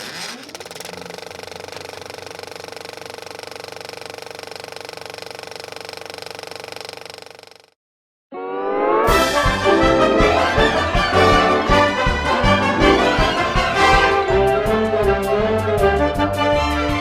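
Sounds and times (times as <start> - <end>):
small machine clattering: 0.0 - 7.7.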